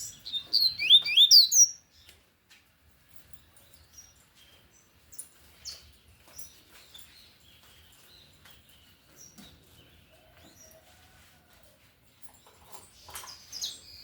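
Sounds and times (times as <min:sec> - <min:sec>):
faint bird chirps: 0:00.0 - 0:01.9.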